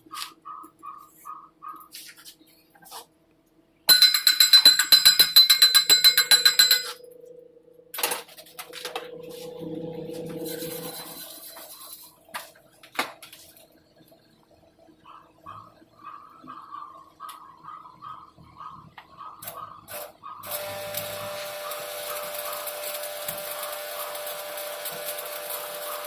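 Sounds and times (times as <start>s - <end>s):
steel struck ringing clinks: 3.9s - 7.6s
metal scraping and clatter: 8.1s - 12.3s.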